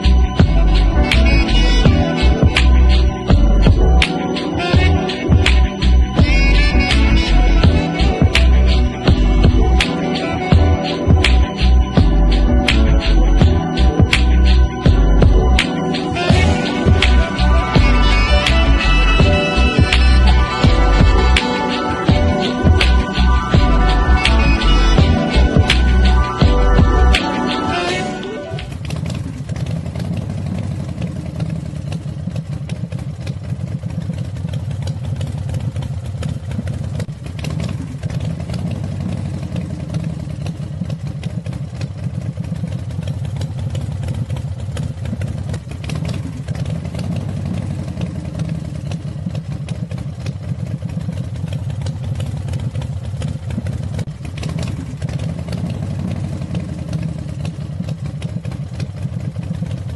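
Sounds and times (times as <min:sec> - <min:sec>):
low hum: 0:00.0 - 0:04.1, 0:04.8 - 0:30.2
model engine clattering: 0:28.7 - 0:59.9.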